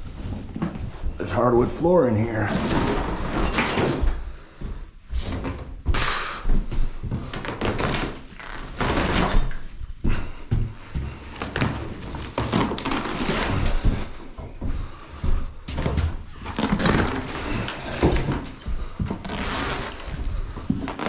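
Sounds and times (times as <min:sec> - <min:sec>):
scraping and rustling: 0:15.7 - 0:21.0.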